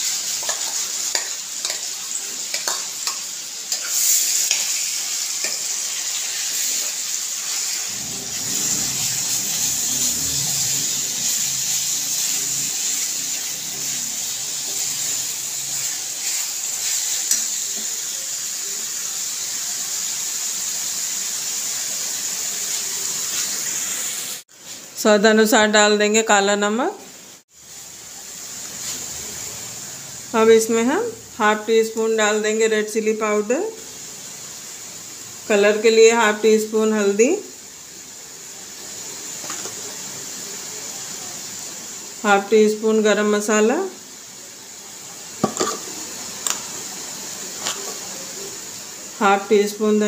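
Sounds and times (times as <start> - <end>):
paste sizzling in hot oil: 0.0 - 25.0, 27.1 - 50.0
metal spoon scraping a pan: 2.5 - 4.8, 15.8 - 17.9.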